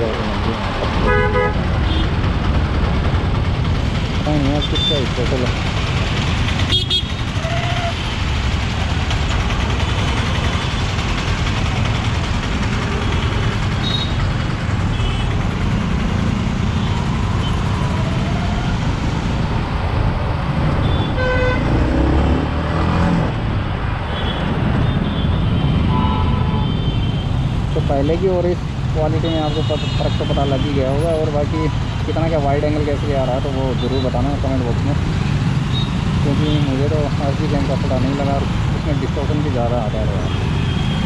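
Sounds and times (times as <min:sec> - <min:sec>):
road traffic: 0:00.0 - 0:41.0
motorcycle engine running: 0:00.7 - 0:19.2
vehicle horn toot: 0:01.0 - 0:02.0, 0:24.2 - 0:27.2.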